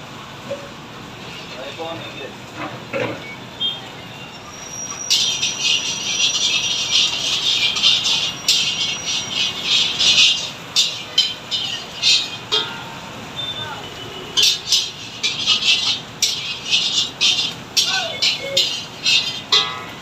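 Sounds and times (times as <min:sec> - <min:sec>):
food sizzling in a pan: 0:04.6 - 0:20.0.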